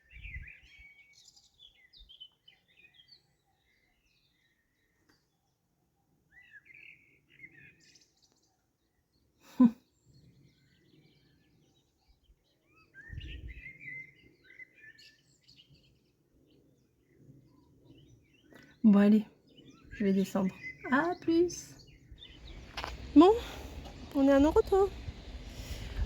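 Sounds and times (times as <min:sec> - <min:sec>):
small birds chirping: 0:00.0 - 0:26.0
brief low rumble: 0:22.2 - 0:26.0.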